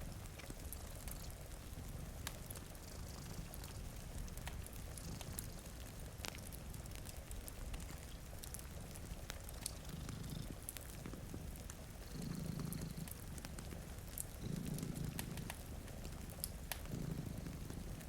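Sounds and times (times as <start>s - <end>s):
cat purring: 0.0s - 18.0s
rain hiss: 0.0s - 18.0s
wood fire crackling and popping: 0.0s - 18.0s.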